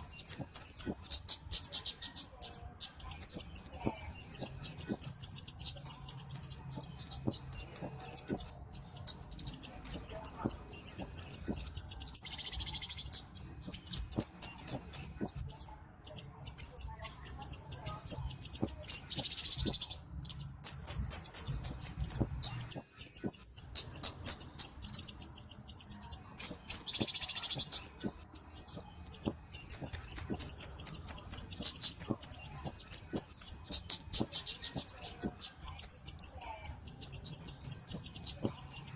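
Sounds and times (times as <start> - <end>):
bird singing high ticking chips: 0.0 - 38.9.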